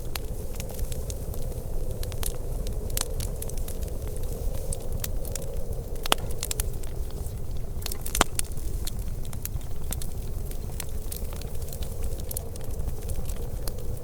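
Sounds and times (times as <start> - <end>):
low fire rumble: 0.0 - 14.0
wood fire crackling and popping: 0.0 - 14.0.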